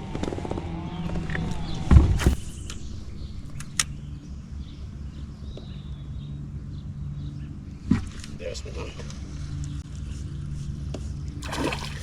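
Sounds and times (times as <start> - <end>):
steady low hum: 1.1 - 8.4.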